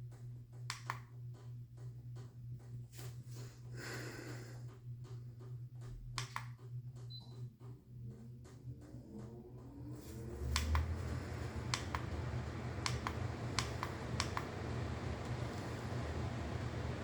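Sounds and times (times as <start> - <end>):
air conditioner whirring and humming: 0.0 - 17.0
sharp clicks: 0.7 - 1.1, 6.2 - 6.6, 10.5 - 10.9.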